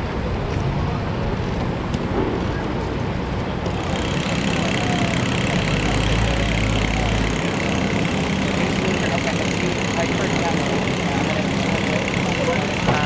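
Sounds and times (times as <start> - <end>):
engine rumble: 0.0 - 13.0.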